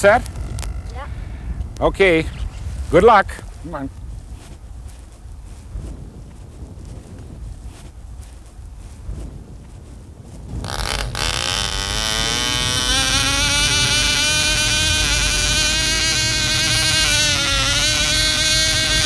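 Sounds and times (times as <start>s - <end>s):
model airplane engine buzzing: 10.5s - 19.0s.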